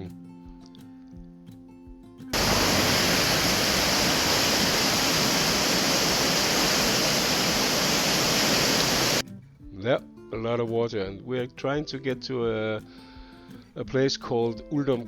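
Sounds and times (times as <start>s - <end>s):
stream rushing: 2.4s - 9.2s.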